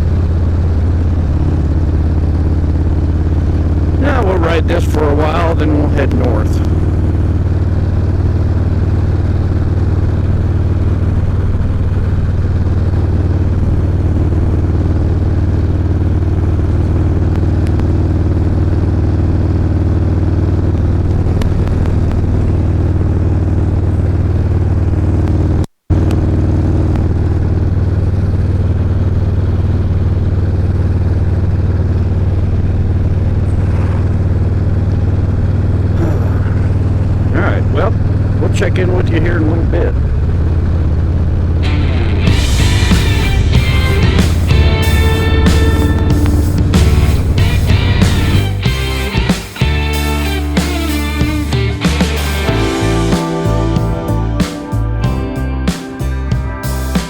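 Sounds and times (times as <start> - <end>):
motorcycle engine cruising: 0.0 - 57.0
wind rushing: 41.6 - 48.6.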